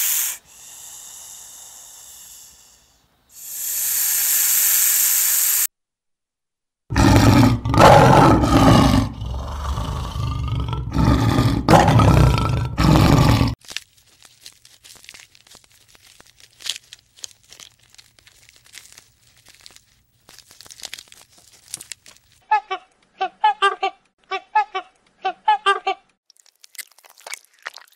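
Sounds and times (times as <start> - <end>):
lion roaring: 6.9 - 13.6.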